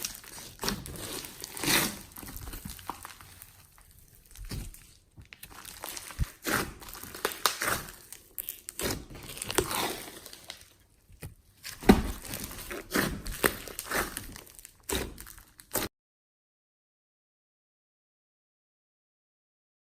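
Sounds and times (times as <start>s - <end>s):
slime squished by hand: 0.0s - 15.9s.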